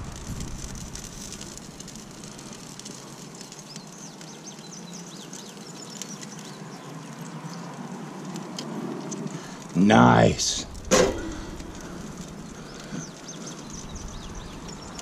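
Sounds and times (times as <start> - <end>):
bird chirping: 11.0 - 15.0.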